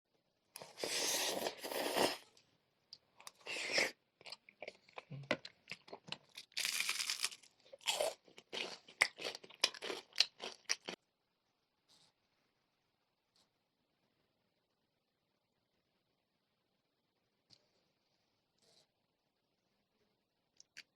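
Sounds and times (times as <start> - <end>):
crunching fried chicken: 3.5 - 11.0.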